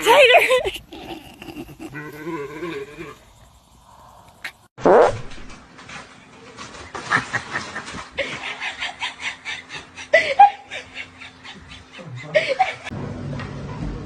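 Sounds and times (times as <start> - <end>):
person laughing: 0.0 - 2.3, 7.1 - 12.9.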